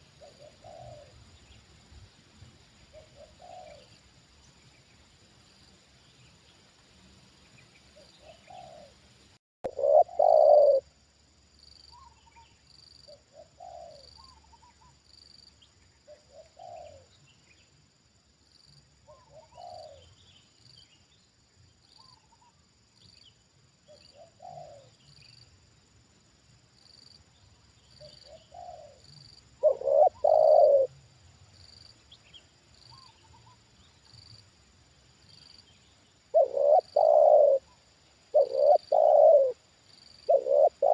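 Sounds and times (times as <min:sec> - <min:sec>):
doves cooing: 0:00.0 - 0:01.2, 0:02.9 - 0:03.9, 0:08.2 - 0:09.0, 0:09.7 - 0:10.8, 0:13.1 - 0:14.9, 0:16.1 - 0:17.0, 0:19.1 - 0:20.1, 0:24.1 - 0:24.9, 0:28.0 - 0:29.0, 0:29.6 - 0:31.0, 0:36.3 - 0:39.6, 0:40.3 - 0:40.9.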